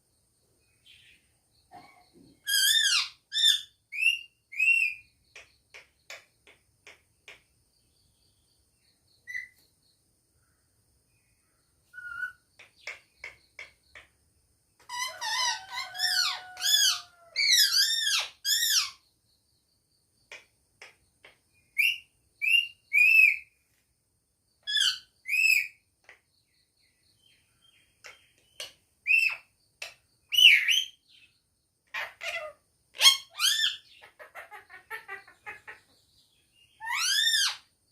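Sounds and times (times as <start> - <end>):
parrot whistles and squawks: 11.9 - 12.4, 14.9 - 19.0, 36.8 - 37.6.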